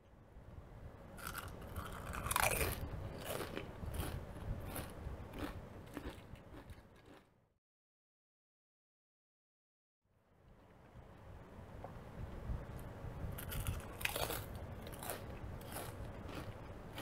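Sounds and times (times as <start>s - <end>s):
crunching chips: 1.2s - 7.3s, 13.4s - 17.0s.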